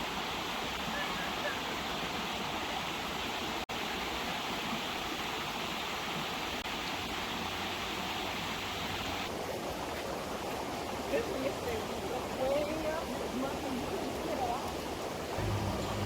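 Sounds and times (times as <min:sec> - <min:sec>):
running water: 0:00.0 - 0:16.0
heavy rain: 0:10.9 - 0:16.0.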